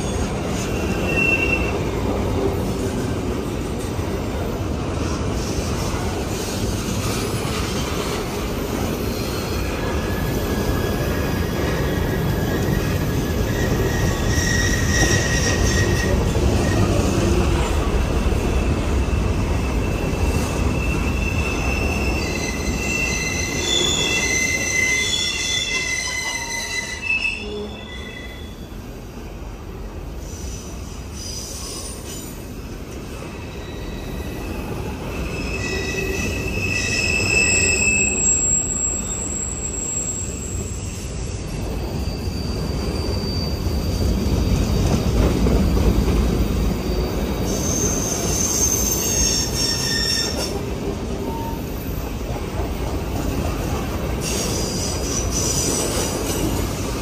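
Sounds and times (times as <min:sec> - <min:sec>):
wheel squeal: 0:00.0 - 0:01.8, 0:09.0 - 0:17.1, 0:18.9 - 0:28.7, 0:33.3 - 0:45.8, 0:46.8 - 0:50.6
train wheels rumbling on rail: 0:00.0 - 0:57.0.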